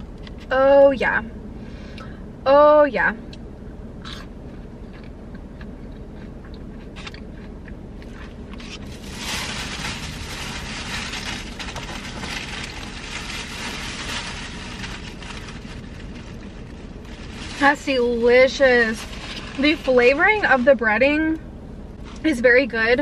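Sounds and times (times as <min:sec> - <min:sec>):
low steady hum: 0:00.0 - 0:23.0
chewing crunchy food: 0:04.0 - 0:09.0.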